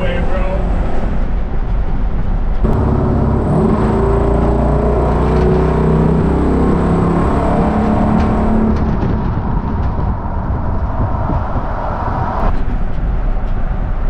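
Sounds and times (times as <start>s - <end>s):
road and wind noise: 0.0s - 14.0s
truck engine running: 2.6s - 11.4s.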